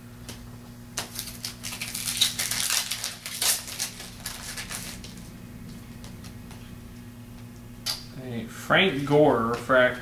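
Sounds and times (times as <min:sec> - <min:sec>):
foil wrapper crinkling and tearing: 0:01.0 - 0:05.3.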